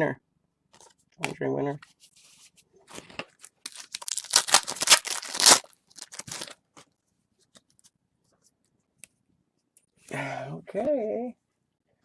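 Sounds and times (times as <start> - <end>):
card pack wrapper tearing: 3.6 - 6.6.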